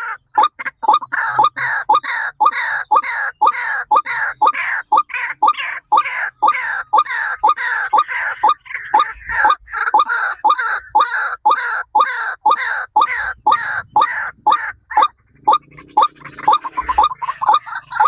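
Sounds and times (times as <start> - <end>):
bird calling harshly: 0.0 - 18.0.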